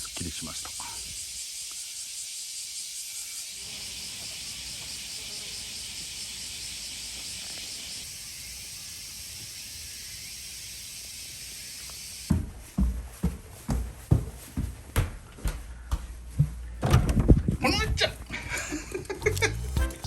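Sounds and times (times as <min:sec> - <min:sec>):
insects chirring: 0:00.0 - 0:12.8.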